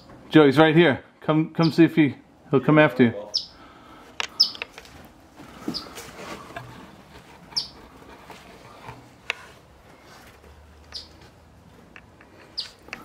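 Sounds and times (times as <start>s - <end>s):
bird chirps: 3.3s - 3.6s, 4.3s - 4.7s, 5.7s - 6.0s, 7.5s - 7.8s, 10.9s - 11.2s, 12.4s - 12.8s.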